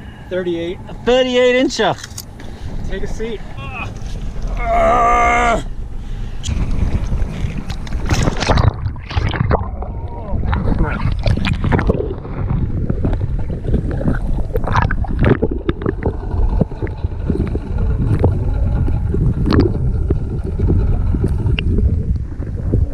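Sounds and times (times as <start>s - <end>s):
wind buffeting microphone: 0.0s - 22.9s
gear knocking against hull: 10.5s - 22.9s.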